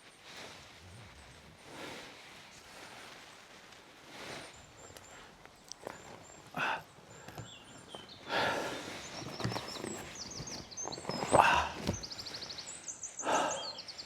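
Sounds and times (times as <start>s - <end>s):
footsteps rustling on forest floor: 0.0s - 13.4s
small birds chirping: 4.2s - 14.0s.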